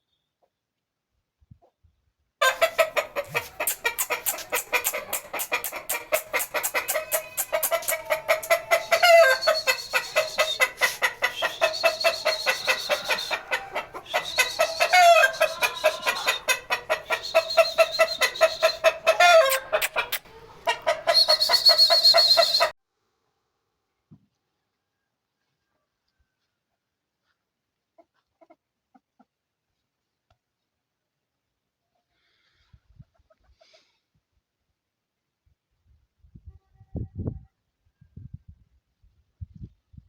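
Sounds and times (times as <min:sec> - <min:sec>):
bird clucking chatter: 0:02.4 - 0:22.7.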